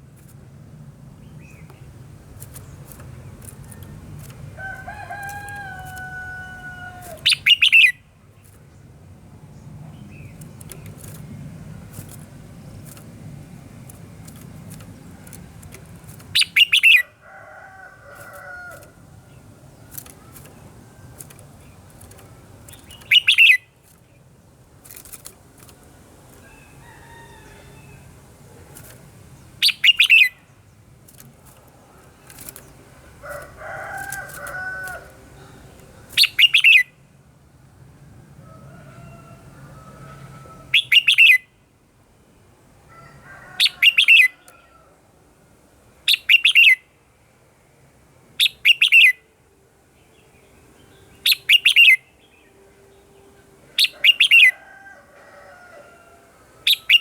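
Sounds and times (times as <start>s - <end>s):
bird singing harsh bursts: 4.8s - 8.1s, 16.3s - 17.2s, 21.2s - 24.0s, 29.6s - 30.5s, 36.1s - 37.0s, 40.7s - 41.6s, 46.1s - 46.9s, 48.4s - 49.3s, 50.8s - 54.6s, 56.7s - 57.0s.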